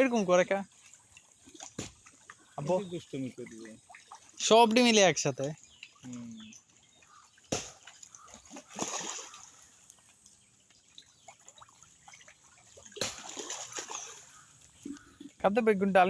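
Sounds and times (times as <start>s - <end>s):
fish splashing at water surface: 7.0s - 14.8s.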